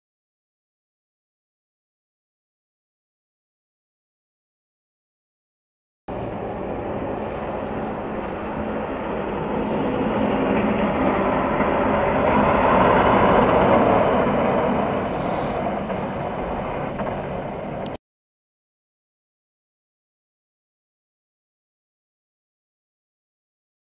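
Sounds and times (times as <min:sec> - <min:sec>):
road noise: 0:06.1 - 0:18.0
vehicle engine: 0:06.1 - 0:18.0.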